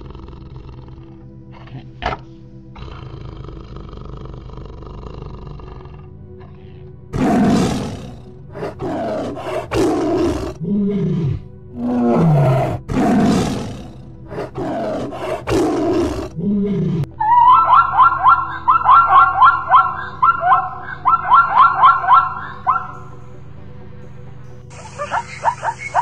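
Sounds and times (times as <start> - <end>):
big cat roaring and growling: 2.8 - 23.0.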